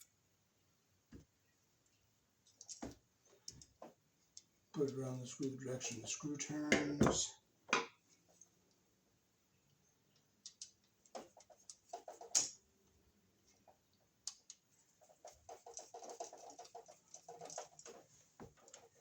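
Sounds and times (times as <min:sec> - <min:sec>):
faint clicks and scrapes: 0:01.2 - 0:07.0, 0:08.0 - 0:08.8, 0:10.1 - 0:12.6, 0:13.4 - 0:19.0.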